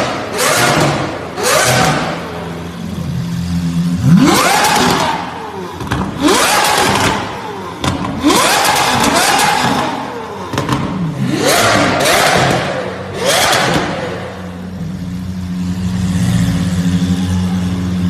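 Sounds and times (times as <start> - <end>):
car engine idling and revving: 0.0 - 18.0
exhaust cracks: 4.0 - 14.8.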